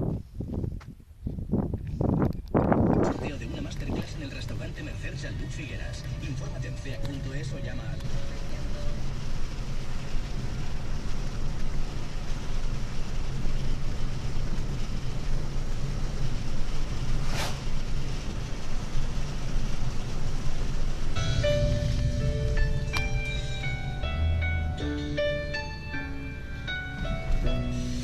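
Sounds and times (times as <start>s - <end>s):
car road and engine rumble: 0.0s - 28.0s
brief rushing whoosh: 17.0s - 18.5s.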